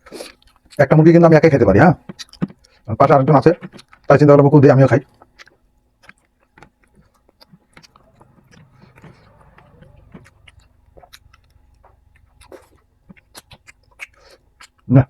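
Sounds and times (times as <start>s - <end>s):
person chewing food: 0.0s - 1.0s, 2.0s - 15.0s
mouth clicks and smacks: 2.0s - 4.2s, 5.0s - 15.0s.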